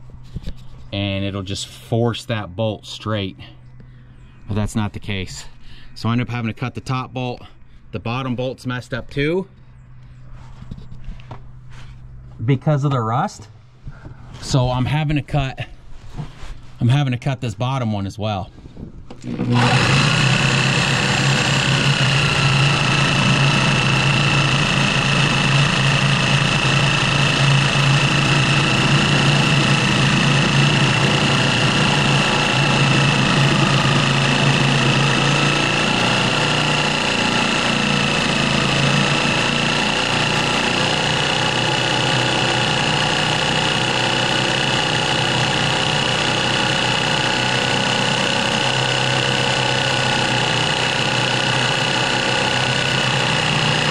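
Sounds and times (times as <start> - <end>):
power cutting tool whining: 19.1 - 53.9.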